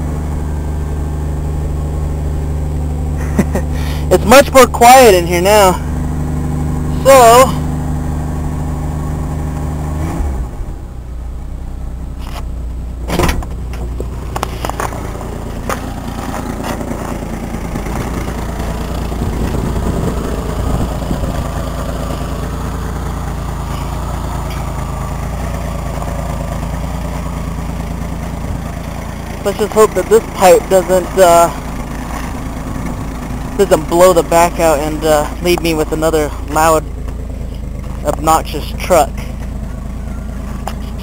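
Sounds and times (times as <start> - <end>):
engine low rumble: 0.0 - 41.0.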